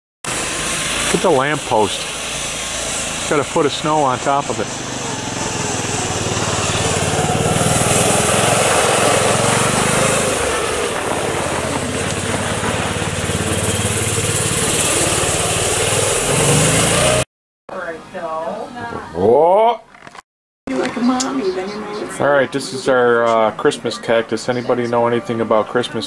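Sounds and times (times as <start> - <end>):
engine running: 0.2 - 18.0
broad hiss: 0.3 - 11.0.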